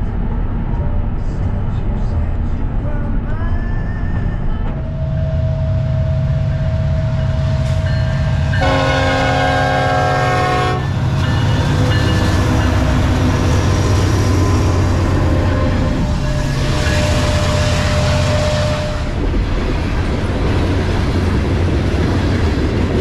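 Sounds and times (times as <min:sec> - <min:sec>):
freight train rumbling past: 0:00.0 - 0:23.0
locomotive air horn blast: 0:08.6 - 0:11.0, 0:16.6 - 0:19.2.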